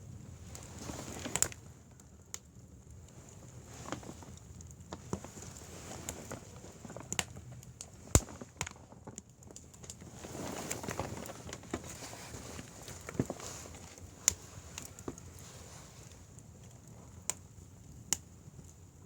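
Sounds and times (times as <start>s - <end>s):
wood fire crackling: 0.0s - 19.0s
fire hissing: 10.0s - 18.1s.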